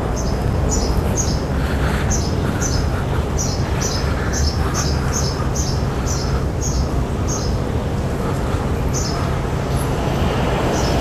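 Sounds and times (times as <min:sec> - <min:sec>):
small bird chirping: 0:02.1 - 0:07.6.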